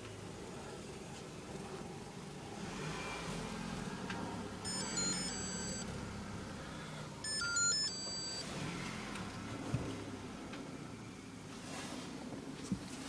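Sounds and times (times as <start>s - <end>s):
car engine humming: 2.2s - 10.4s
high electronic beeps: 4.7s - 5.8s, 7.2s - 8.4s.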